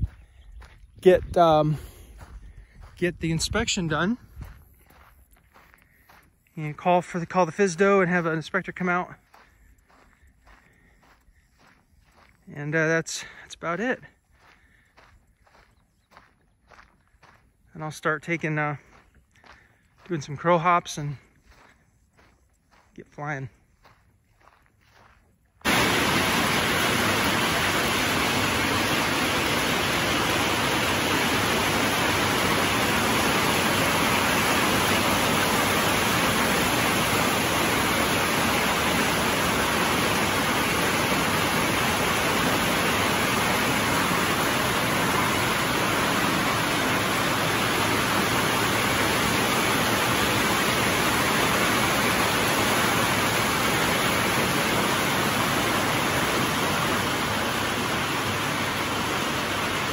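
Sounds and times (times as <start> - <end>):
heavy rain on a metal roof: 25.6 - 59.9.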